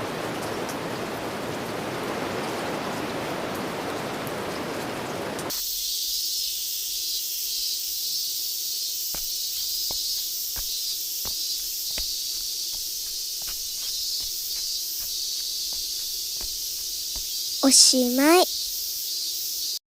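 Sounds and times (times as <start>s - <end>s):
high insect chorus: 5.5s - 19.8s.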